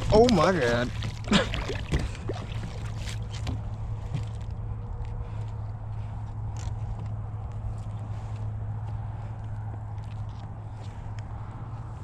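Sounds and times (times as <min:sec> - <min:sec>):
water splashes: 0:00.0 - 0:04.6
low steady hum: 0:00.0 - 0:12.0.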